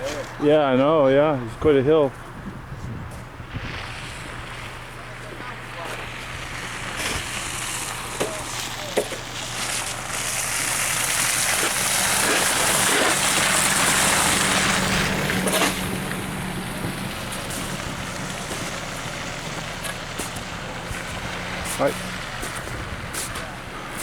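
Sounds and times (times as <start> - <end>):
vehicle engine humming: 0.0 - 24.0
broad rush of noise: 3.4 - 24.0.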